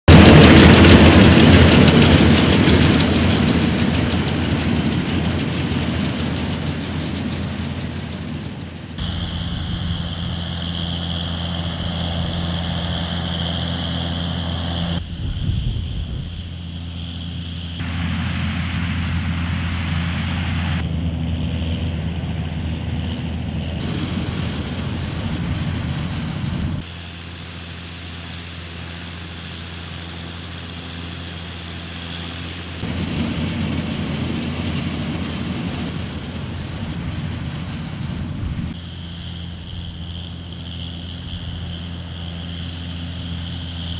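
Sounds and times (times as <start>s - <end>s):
tractor engine running: 0.1s - 43.9s.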